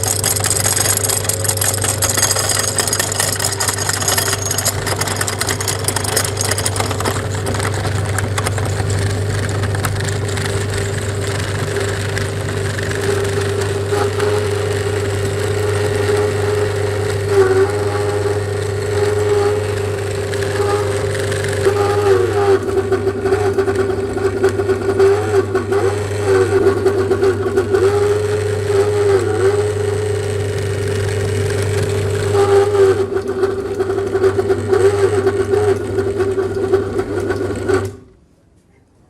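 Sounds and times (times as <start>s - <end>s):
electric meat grinder motor: 0.0s - 38.0s.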